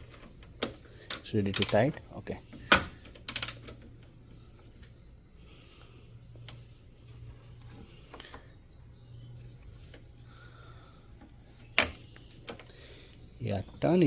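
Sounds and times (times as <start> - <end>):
ratchet wrench clicking: 3.3 - 3.7.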